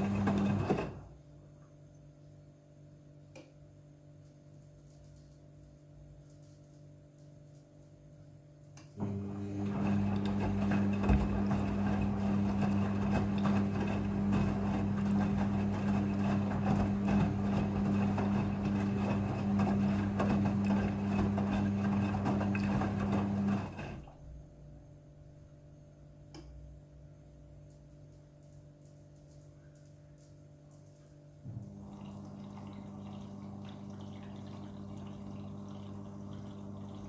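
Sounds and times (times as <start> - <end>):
washing machine running: 0.0 - 1.2, 9.0 - 24.3, 31.5 - 37.0.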